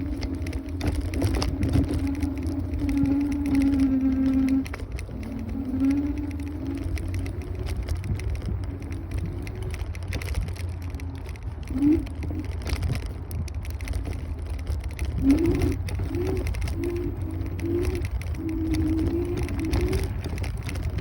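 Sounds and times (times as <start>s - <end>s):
road rumble: 0.0s - 21.0s
wind buffeting microphone: 0.0s - 21.0s.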